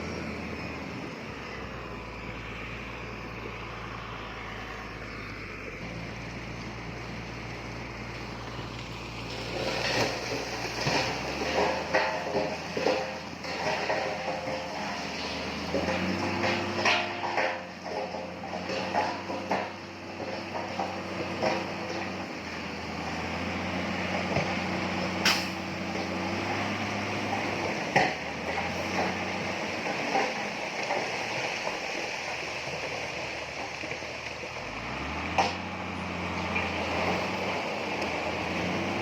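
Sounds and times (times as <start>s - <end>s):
diesel machinery running: 0.0s - 39.0s
sharp metallic clanks: 25.2s - 25.6s.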